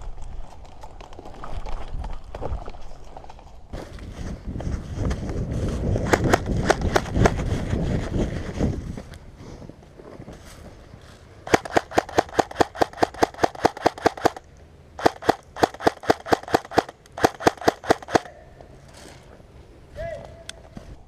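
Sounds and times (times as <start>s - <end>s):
airsoft gun rapid shots: 6.0s - 7.4s, 11.5s - 14.4s, 15.0s - 18.3s.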